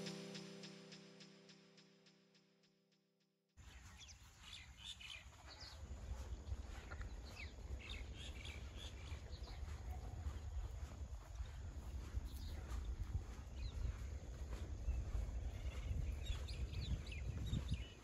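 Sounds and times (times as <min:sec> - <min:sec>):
background music: 0:00.0 - 0:01.8
birds chirping: 0:03.6 - 0:18.0.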